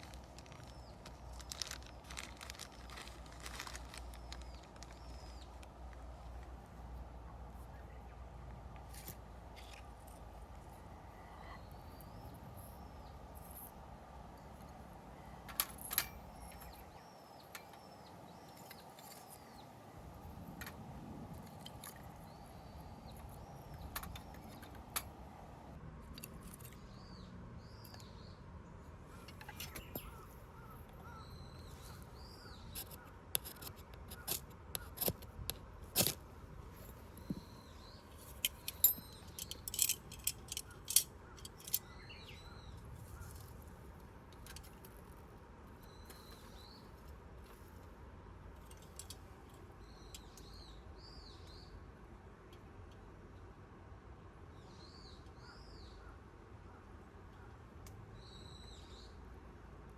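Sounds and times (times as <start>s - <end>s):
birds chirping: 0.0s - 35.2s, 36.7s - 44.7s
outdoor hush: 0.0s - 59.9s.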